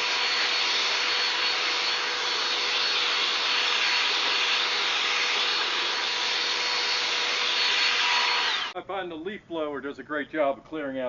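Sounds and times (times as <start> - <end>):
electric leaf blower running: 0.0 - 8.8.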